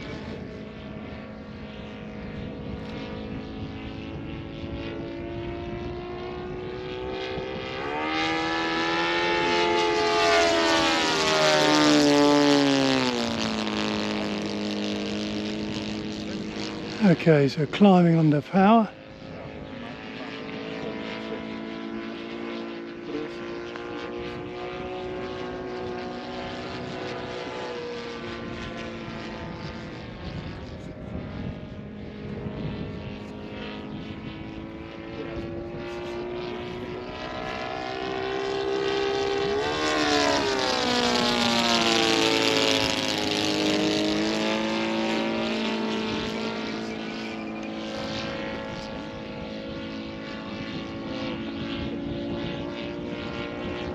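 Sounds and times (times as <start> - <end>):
model airplane engine drone: 0.0 - 53.9.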